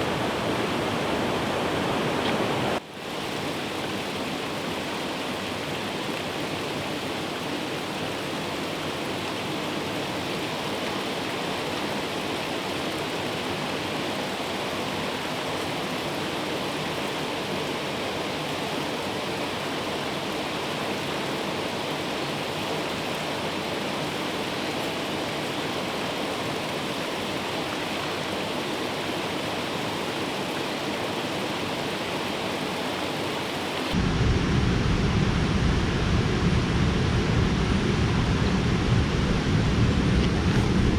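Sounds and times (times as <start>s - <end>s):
water rushing: 0.0s - 40.9s
deep rumble: 33.9s - 40.9s.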